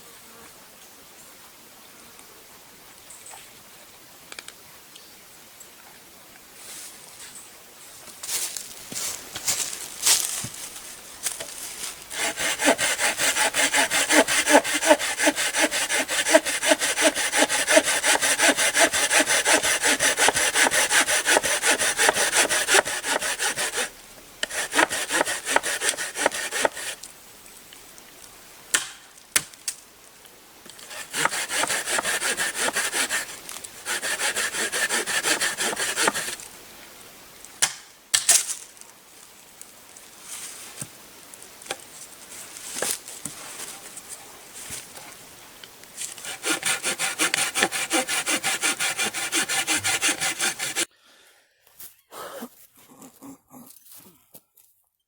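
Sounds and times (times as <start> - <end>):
hand saw cutting wood: 12.1 - 27.0, 30.8 - 36.4, 46.0 - 50.9.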